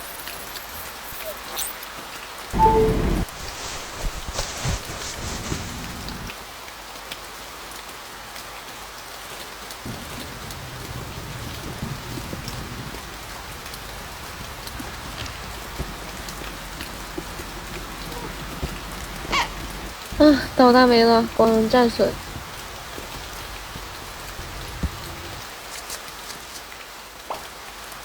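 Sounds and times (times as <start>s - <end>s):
heavy rain on car roof: 2.7s - 6.5s, 9.0s - 27.0s.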